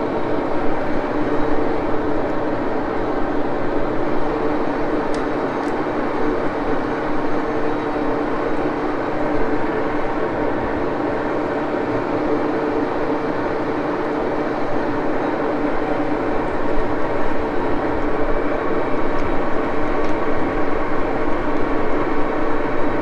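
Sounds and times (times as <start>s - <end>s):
lathe humming with whine: 0.0s - 23.0s.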